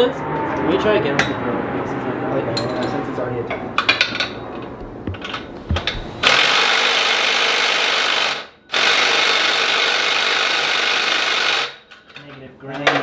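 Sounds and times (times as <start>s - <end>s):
power drill running: 6.2s - 11.8s.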